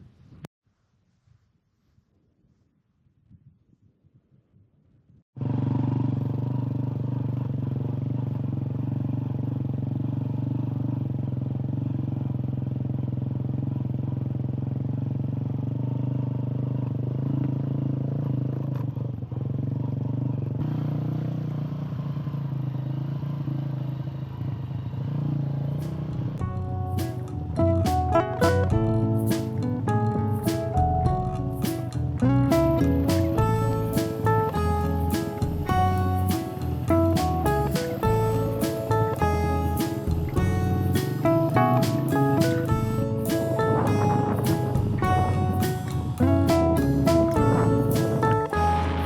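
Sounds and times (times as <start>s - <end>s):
motorcycle engine running: 5.4s - 49.0s.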